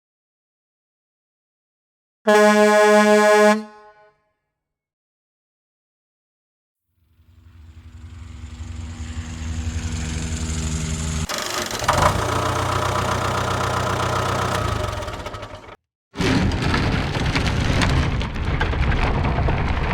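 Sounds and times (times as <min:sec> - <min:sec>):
engine hum: 0:07.1 - 0:15.8
rough engine rumbling: 0:07.2 - 0:15.8.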